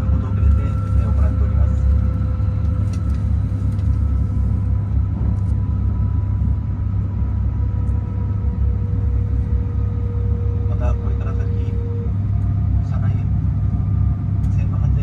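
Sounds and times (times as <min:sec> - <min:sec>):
train interior rumble: 0:00.0 - 0:15.0.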